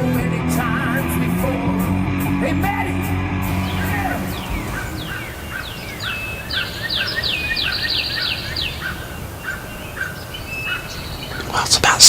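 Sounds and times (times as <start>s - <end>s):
high downward whistled bird notes: 3.2s - 11.4s
short low bird calls: 3.4s - 11.8s.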